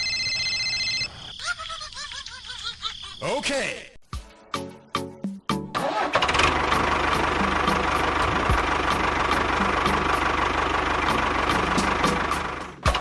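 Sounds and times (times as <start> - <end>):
small engine pulsing: 5.8 - 12.8.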